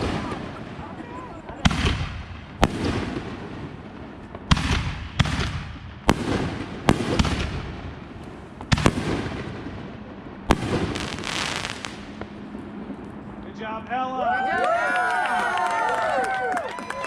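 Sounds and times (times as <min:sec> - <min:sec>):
firework bangs with crackle: 0:00.0 - 0:12.4.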